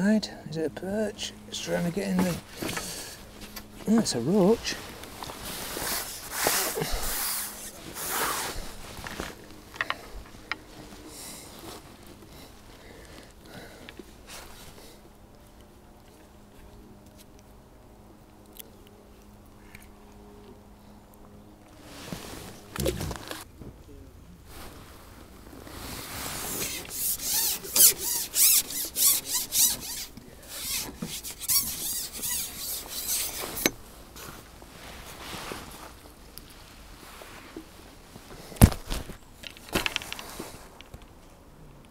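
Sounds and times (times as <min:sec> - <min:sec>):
close rustling and handling noise: 0:01.4 - 0:17.6, 0:18.3 - 0:41.9
rubbing squeaking strokes: 0:04.5 - 0:09.5, 0:25.6 - 0:33.7
handling noise: 0:21.8 - 0:23.8, 0:24.5 - 0:41.2.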